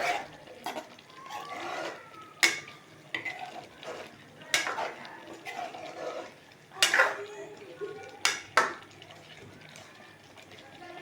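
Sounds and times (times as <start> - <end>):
metal spoon scraping in metal pot: 0.0 - 7.2
spoon clinking against pot: 2.4 - 3.4.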